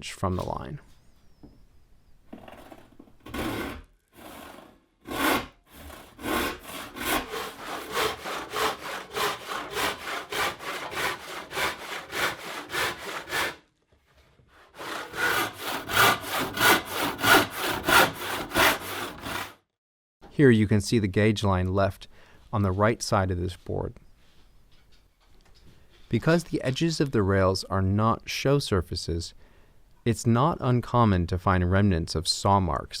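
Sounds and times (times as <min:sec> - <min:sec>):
hand saw ripping a board: 0:02.6 - 0:13.6, 0:14.6 - 0:19.6.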